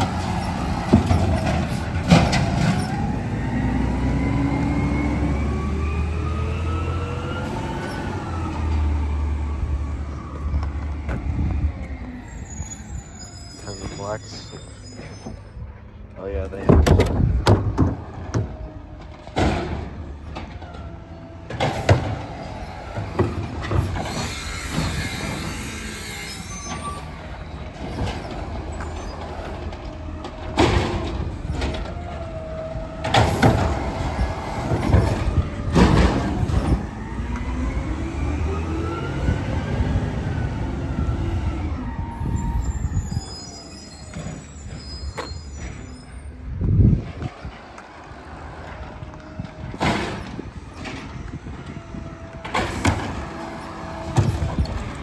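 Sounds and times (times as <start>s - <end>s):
loud clanks and knocks: 0.0s - 3.0s, 16.6s - 25.7s, 27.6s - 32.3s, 33.0s - 36.9s, 48.8s - 51.7s, 52.4s - 55.0s
garbage truck engine: 0.0s - 55.0s.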